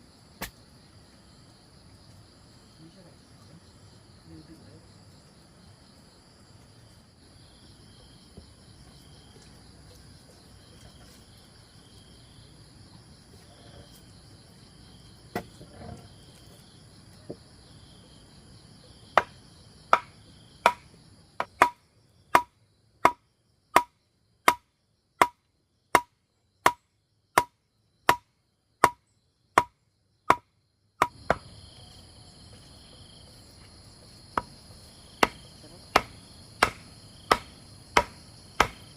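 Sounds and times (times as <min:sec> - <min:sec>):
insects trilling: 0:00.0 - 0:38.9
tool striking wood: 0:15.3 - 0:15.6, 0:19.1 - 0:29.0, 0:29.6 - 0:31.5, 0:35.2 - 0:38.9.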